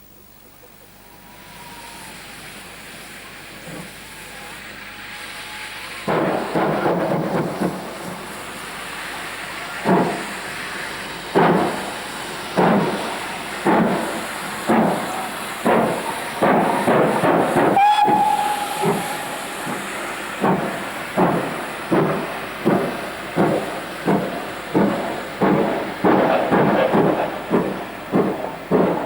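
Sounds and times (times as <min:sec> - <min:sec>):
steam locomotive exhaust beats: 0:00.4 - 0:29.0
steam whistle blast: 0:01.2 - 0:02.3, 0:04.2 - 0:06.6, 0:14.7 - 0:20.9.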